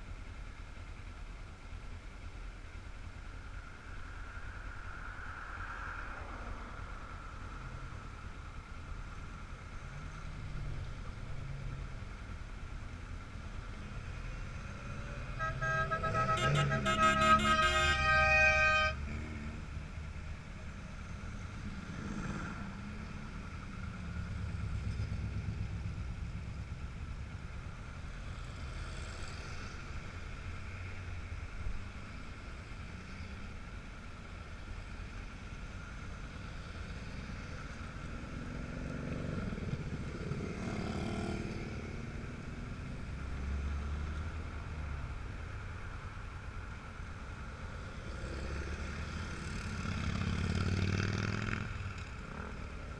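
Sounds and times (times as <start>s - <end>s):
cars and motorcycles passing: 0.0s - 52.9s
car horn: 15.1s - 19.2s.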